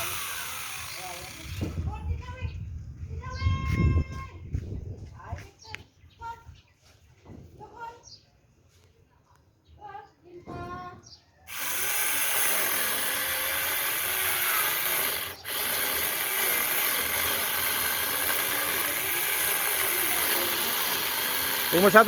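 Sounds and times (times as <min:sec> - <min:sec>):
angle grinder chainsaw cutting: 0:00.0 - 0:01.8, 0:11.5 - 0:22.0.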